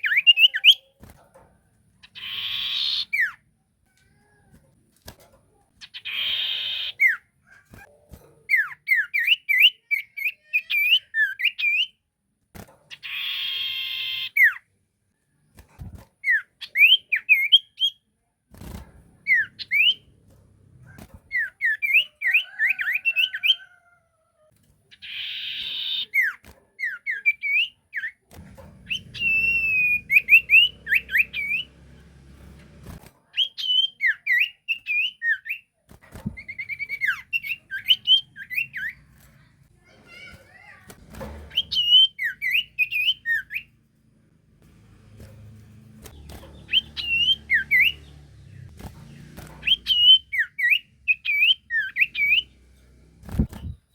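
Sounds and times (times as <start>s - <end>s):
harsh scratchy bird call: 2.1s - 3.4s, 5.8s - 7.2s, 28.9s - 31.7s, 46.1s - 48.1s, 49.6s - 52.5s
bird singing whistled notes: 28.9s - 31.7s, 41.5s - 43.7s, 49.6s - 52.5s.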